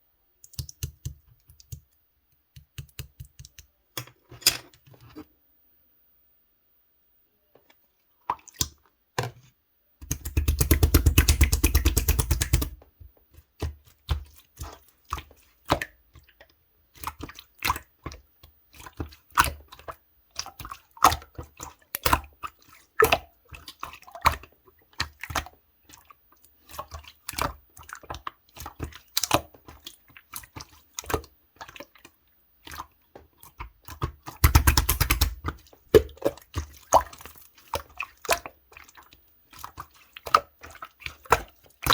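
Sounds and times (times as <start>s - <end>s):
slime clicking and popping: 10.0s - 12.8s, 34.4s - 36.1s
slime squishing: 10.0s - 12.8s, 26.7s - 41.9s.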